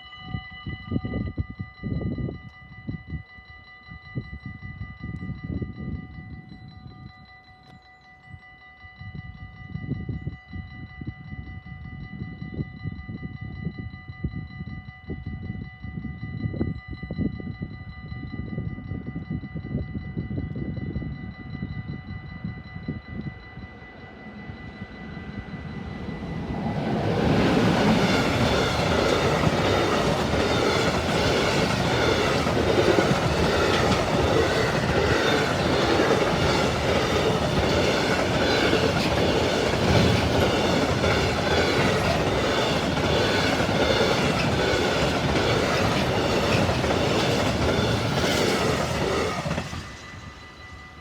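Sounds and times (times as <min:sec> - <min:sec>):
train wheels clattering over rail joints: 0:25.7 - 0:50.2.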